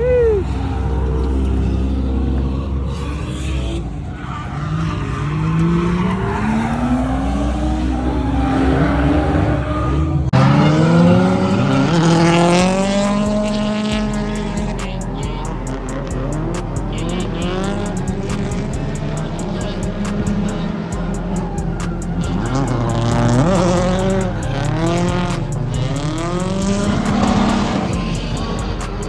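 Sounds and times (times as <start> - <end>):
car engines revving: 0.0 - 29.0
tyres squealing: 10.4 - 29.0.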